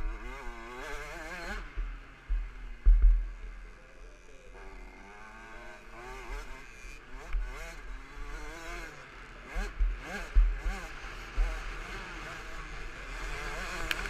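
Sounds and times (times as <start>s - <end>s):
two-stroke motorcycle engine revving: 0.0s - 14.0s
heavy low thumps: 1.7s - 3.6s.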